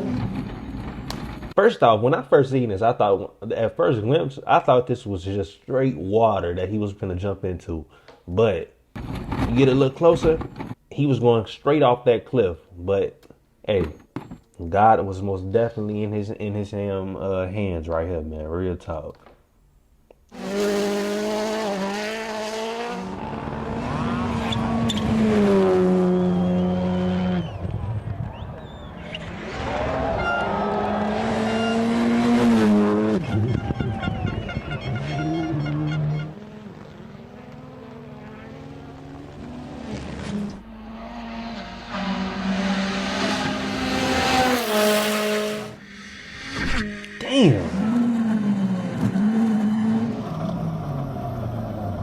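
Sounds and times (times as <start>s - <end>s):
rally car engine revving high: 20.3s - 52.0s.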